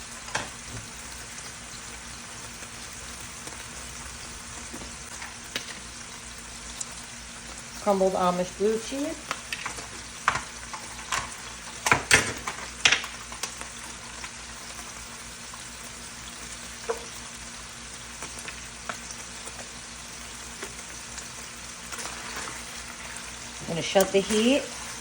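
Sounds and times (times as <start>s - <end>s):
meat sizzling in a pan: 0.0s - 25.0s
utensil scraping a pan: 21.9s - 25.0s.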